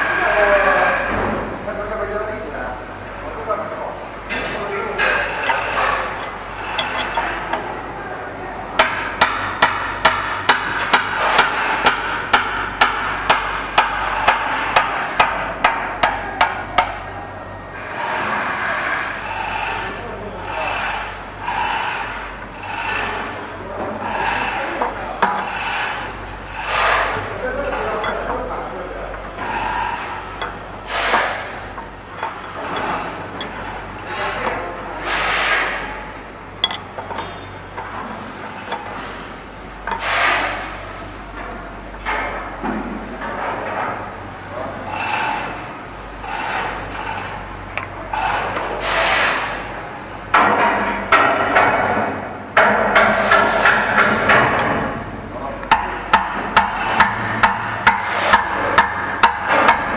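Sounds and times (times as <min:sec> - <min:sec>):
steady low hum: 0:00.0 - 0:48.8
steady background noise: 0:00.0 - 0:59.9
hammer striking: 0:25.2 - 0:26.0, 0:36.6 - 0:37.4, 0:55.6 - 0:59.9.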